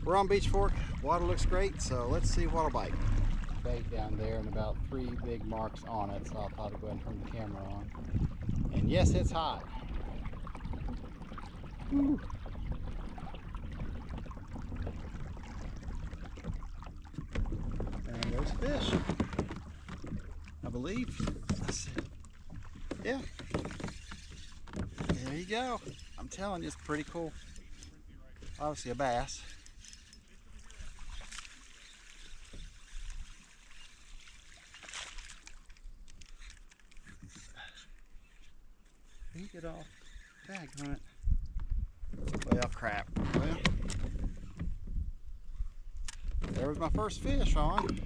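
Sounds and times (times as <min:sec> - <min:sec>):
water sloshing against kayak hull: 0:00.0 - 0:48.0
small splashes: 0:09.6 - 0:41.2.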